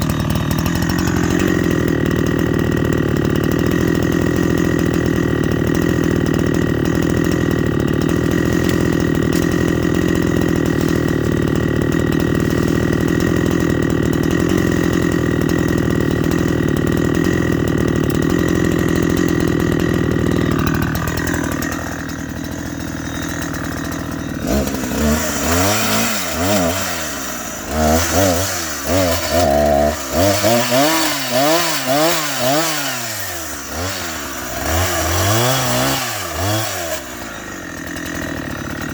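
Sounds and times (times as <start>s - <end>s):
chainsaw revving: 0.0s - 38.9s
engine running: 0.0s - 38.9s.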